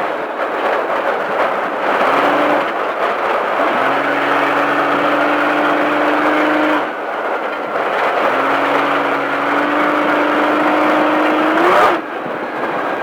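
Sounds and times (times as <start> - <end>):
road and wind noise: 0.0 - 13.0
race truck engine revving: 1.8 - 12.2.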